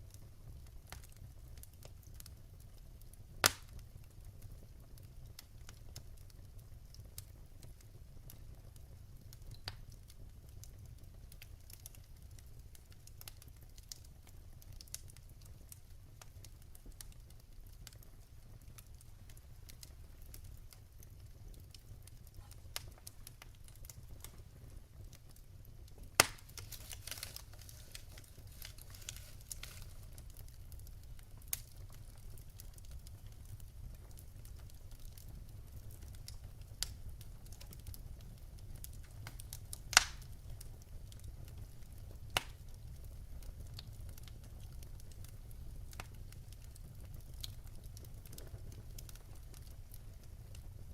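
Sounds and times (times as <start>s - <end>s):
fire crackling in fireplace: 0.0s - 50.9s
loud sharp pop of fire: 3.4s - 3.8s, 26.1s - 29.9s, 39.9s - 40.3s, 42.3s - 42.6s.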